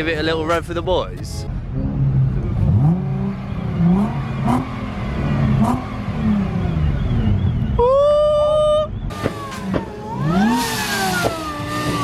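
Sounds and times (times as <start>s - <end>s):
car engine revving: 1.5s - 7.8s, 8.9s - 12.0s.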